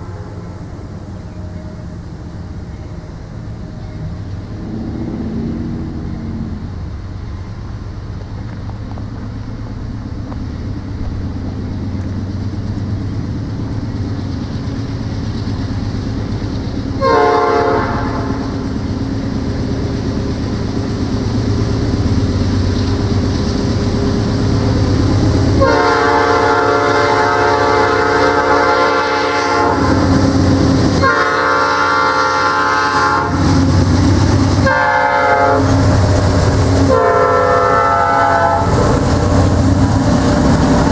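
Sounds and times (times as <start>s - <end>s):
locomotive air horn: 0.0s - 0.6s, 17.0s - 18.5s, 25.6s - 30.1s, 31.0s - 33.5s, 34.6s - 35.8s, 36.8s - 38.9s
low engine rumble: 0.0s - 40.9s.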